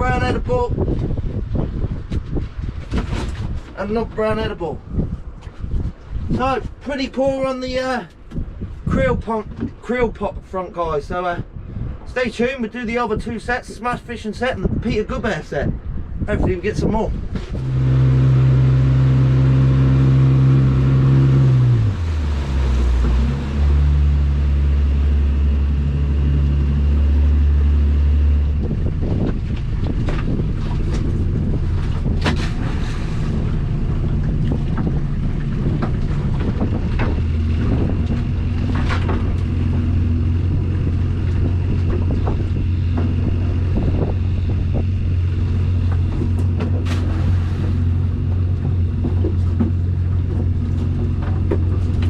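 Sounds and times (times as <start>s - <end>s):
knocks and splashes: 0.8s - 4.4s, 20.6s - 25.2s, 26.2s - 52.0s
outboard motor running: 17.3s - 52.0s.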